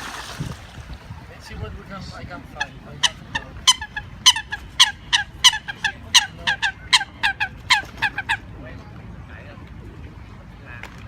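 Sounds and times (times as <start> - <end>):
ducks calling: 2.4 - 8.5.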